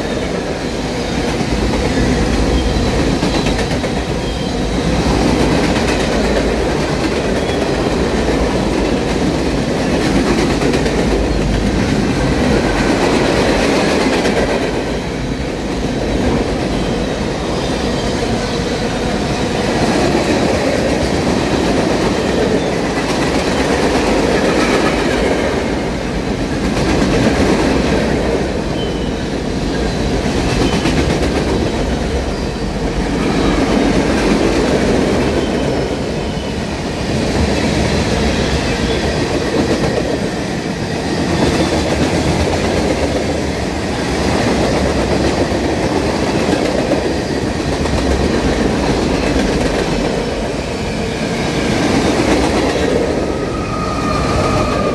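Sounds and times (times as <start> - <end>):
freight train wheels clacking: 0.0 - 54.9
faint wheel squeal: 53.3 - 54.9.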